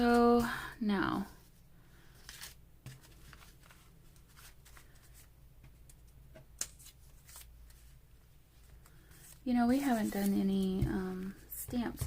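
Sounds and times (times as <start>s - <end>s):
paper rustling and tapping: 2.3s - 7.8s, 9.8s - 12.0s.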